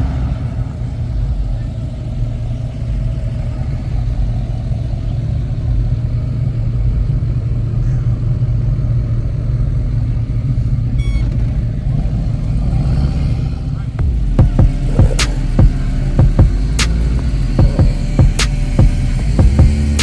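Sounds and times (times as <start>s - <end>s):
car engine rumbling: 0.0s - 20.0s
high beep: 11.0s - 11.3s.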